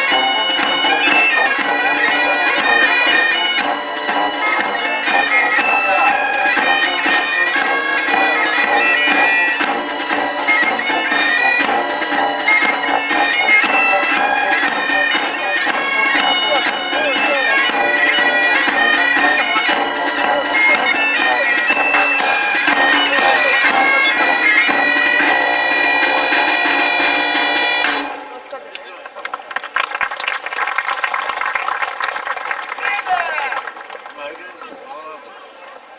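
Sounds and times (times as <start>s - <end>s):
bagpipes playing a tune: 0.0s - 28.6s.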